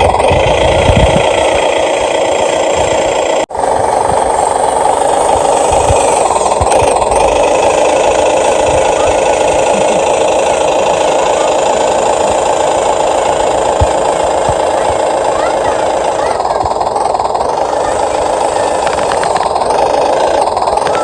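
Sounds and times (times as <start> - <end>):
mechanical drone of excavator: 0.0 - 21.0.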